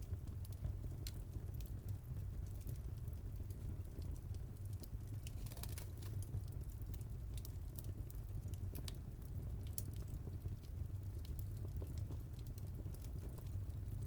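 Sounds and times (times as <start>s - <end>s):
wood fire crackling in fireplace: 0.0s - 14.0s.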